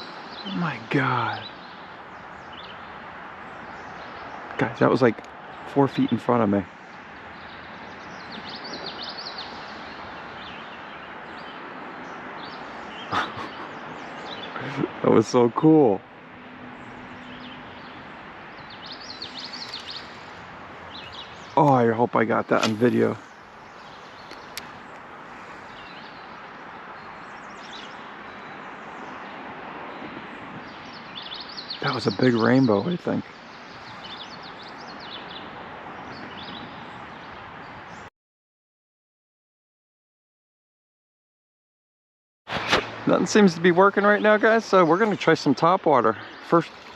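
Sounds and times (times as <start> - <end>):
creek water rushing: 0.0 - 36.1, 42.5 - 46.9
small bird chirping: 7.3 - 14.9, 18.6 - 21.8, 22.4 - 26.4.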